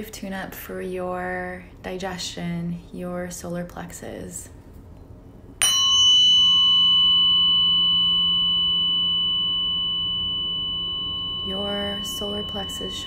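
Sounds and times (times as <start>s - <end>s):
tuning fork ringing: 5.6s - 13.0s.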